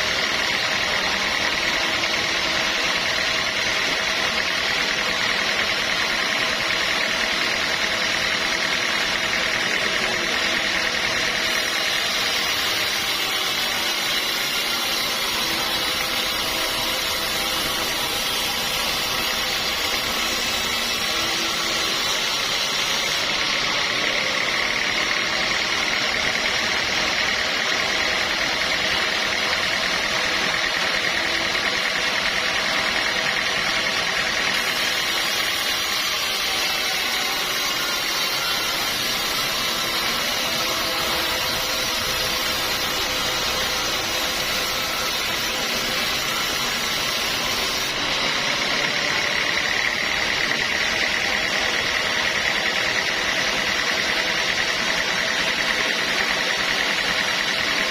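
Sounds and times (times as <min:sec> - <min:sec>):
sawmill machinery running: 0:00.0 - 0:57.9.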